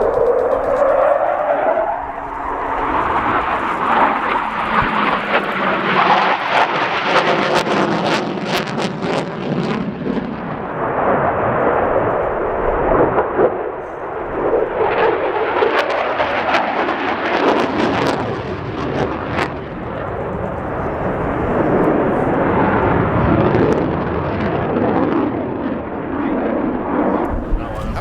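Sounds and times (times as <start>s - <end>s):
jet crackling: 0.0s - 7.6s, 27.2s - 28.0s
loud rushing jet noise: 0.0s - 17.2s.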